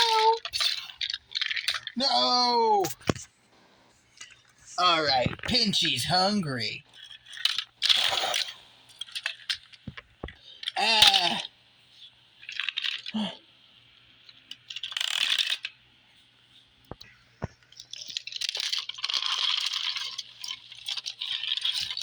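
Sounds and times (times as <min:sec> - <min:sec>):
toys scraping and rustling: 0:00.0 - 0:10.4, 0:14.2 - 0:15.8, 0:16.6 - 0:22.0.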